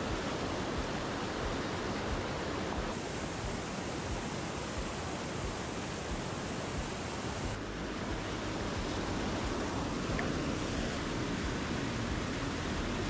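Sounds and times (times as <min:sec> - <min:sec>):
waterfall roaring: 0:02.9 - 0:07.6.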